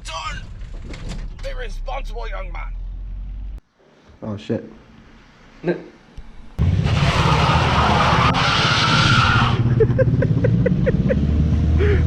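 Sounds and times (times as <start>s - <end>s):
car engine accelerating: 1.6s - 3.6s, 6.2s - 12.0s.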